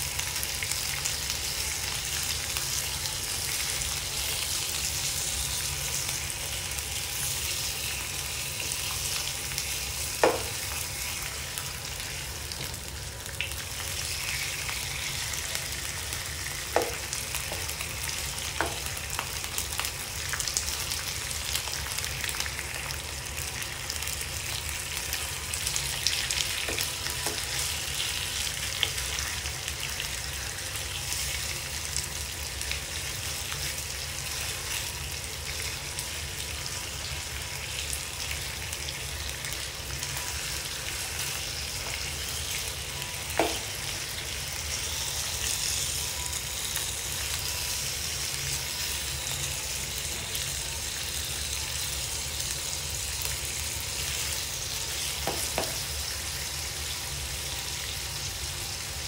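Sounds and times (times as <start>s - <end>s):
meat sizzling in oil: 0.0s - 59.0s
spatula knocking against pan: 55.2s - 55.8s.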